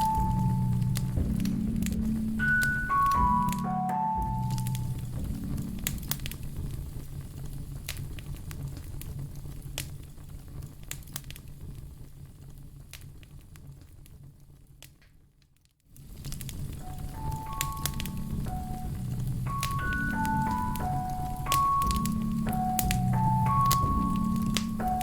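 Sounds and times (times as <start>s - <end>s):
low steady rumble: 0.0s - 10.8s, 16.0s - 25.0s
fireplace crackling: 0.0s - 25.0s.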